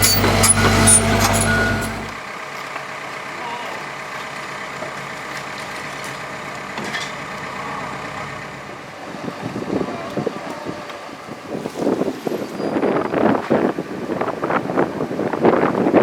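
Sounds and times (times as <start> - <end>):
heavy diesel machinery running: 0.0 - 12.1.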